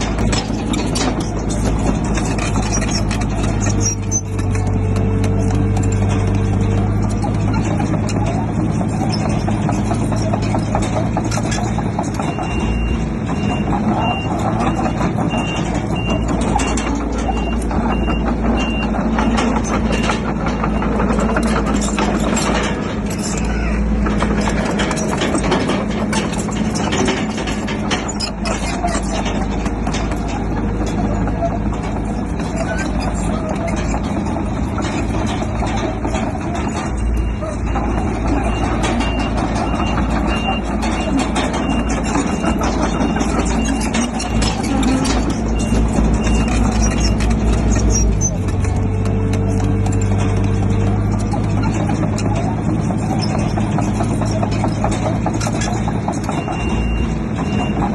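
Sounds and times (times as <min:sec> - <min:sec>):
continuous rapid rattle: 0:00.0 - 0:57.9
diesel engine running: 0:00.0 - 0:57.9
reversing alarm beeps: 0:12.2 - 0:21.0, 0:56.3 - 0:57.9.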